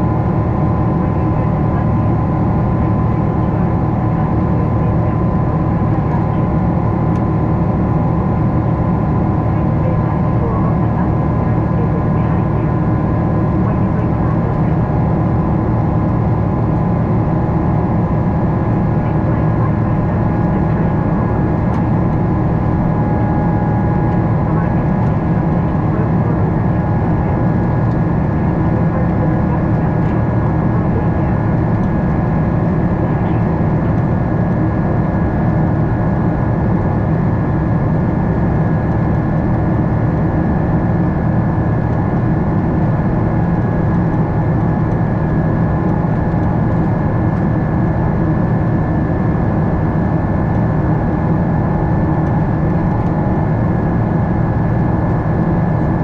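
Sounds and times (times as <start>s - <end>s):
jet engine drone: 0.0s - 56.0s.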